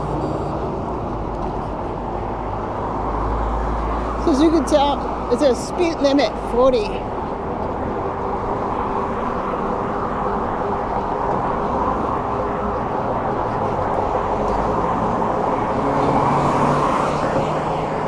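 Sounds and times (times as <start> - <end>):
passing traffic: 0.0 - 18.0
wind and road noise: 0.0 - 18.0.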